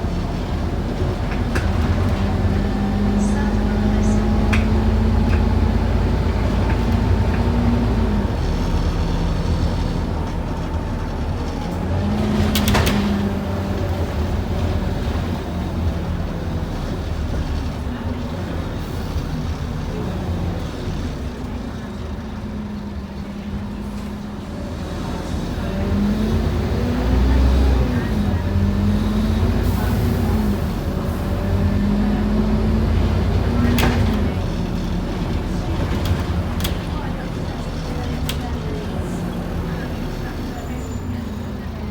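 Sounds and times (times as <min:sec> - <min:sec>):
bus diesel engine droning: 0:00.0 - 0:41.9
road noise: 0:00.0 - 0:41.9.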